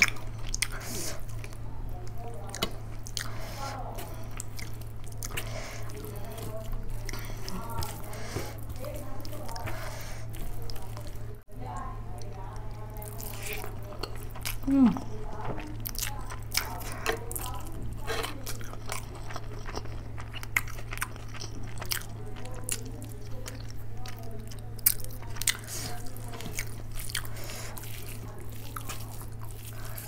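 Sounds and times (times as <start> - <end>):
person chewing food: 0.0 - 11.5, 12.1 - 30.0.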